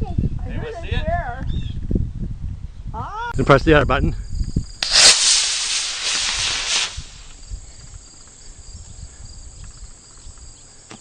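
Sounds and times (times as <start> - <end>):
insects chirping: 4.2 - 11.0
rocket motor rushing hiss: 4.7 - 7.8.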